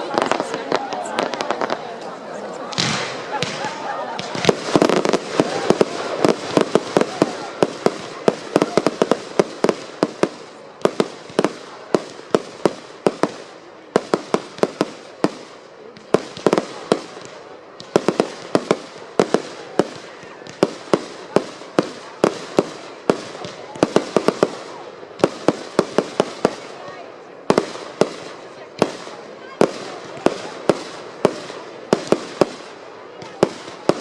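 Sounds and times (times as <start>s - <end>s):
fireworks bangs: 0.0s - 34.0s.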